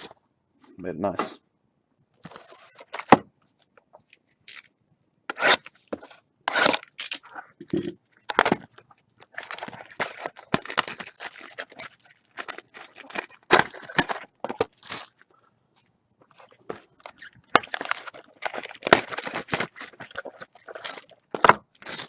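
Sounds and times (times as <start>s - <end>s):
plastic wrapping tearing and crinkling: 6.5s - 7.4s, 9.2s - 15.2s, 16.4s - 22.0s.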